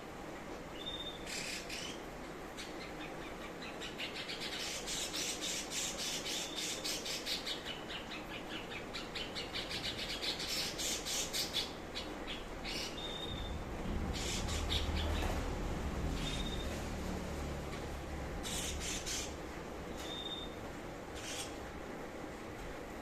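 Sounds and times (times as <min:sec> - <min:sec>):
bird chattering song: 0:02.6 - 0:15.3, 0:16.2 - 0:16.8, 0:18.4 - 0:19.4, 0:21.2 - 0:21.6
high bird whistle: 0:20.0 - 0:20.6.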